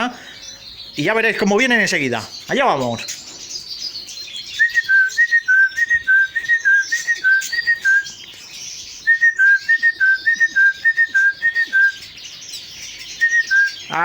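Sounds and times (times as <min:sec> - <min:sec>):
person whistling bird call: 0:04.5 - 0:08.2, 0:09.0 - 0:12.1, 0:13.2 - 0:14.0.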